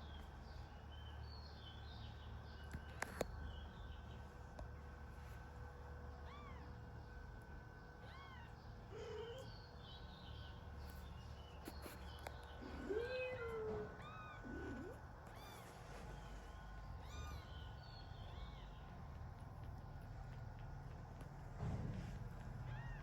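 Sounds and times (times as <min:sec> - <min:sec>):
kitten mewing: 0:12.6 - 0:15.6.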